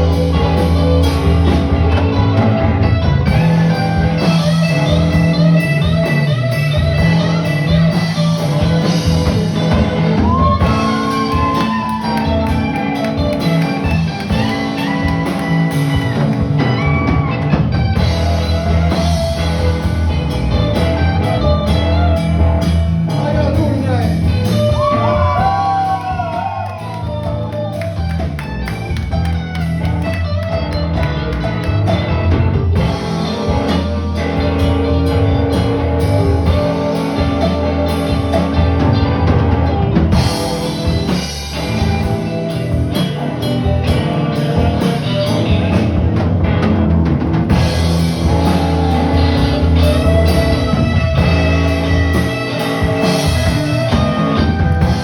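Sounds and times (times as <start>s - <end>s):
bass: 0.0s - 55.0s
drums: 0.0s - 55.0s
electric guitar: 0.0s - 55.0s.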